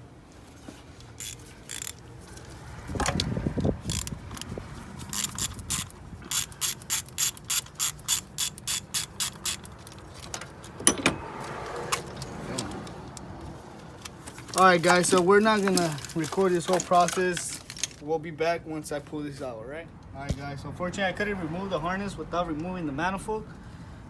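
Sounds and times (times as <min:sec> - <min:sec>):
ratchet wrench clicking: 0:01.2 - 0:11.0
dull metal clunk: 0:10.8 - 0:11.4.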